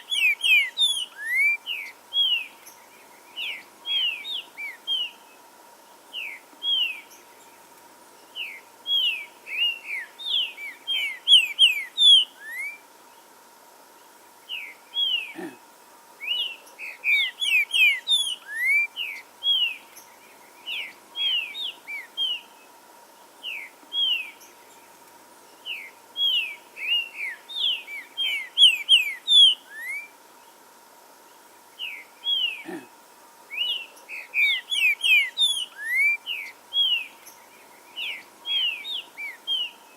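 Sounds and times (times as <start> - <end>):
bird singing whistled notes: 0.0 - 5.3, 6.1 - 7.3, 8.2 - 12.8, 16.2 - 22.6, 23.4 - 24.8, 25.6 - 30.1, 33.5 - 39.9.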